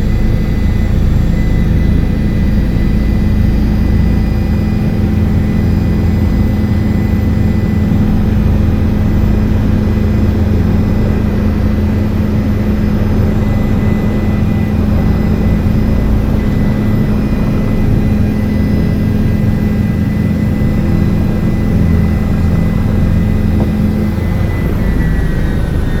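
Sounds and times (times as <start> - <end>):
helicopter rotor and engine drone: 0.0 - 26.0
high turbine whine: 0.0 - 26.0.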